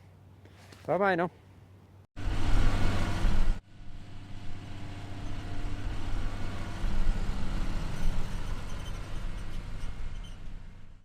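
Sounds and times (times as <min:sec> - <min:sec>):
vehicle engine humming: 0:02.2 - 0:11.0.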